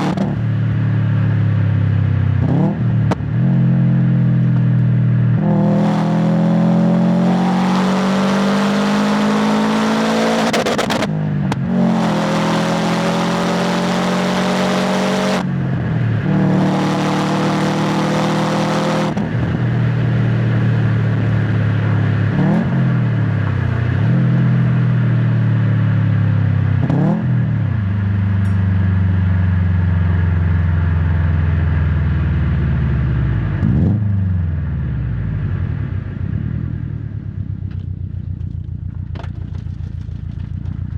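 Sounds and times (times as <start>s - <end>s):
car engine revving through gears: 0.0s - 0.4s, 2.4s - 4.5s, 5.4s - 15.5s, 16.2s - 19.6s, 22.2s - 24.6s, 26.8s - 27.5s, 33.5s - 34.4s.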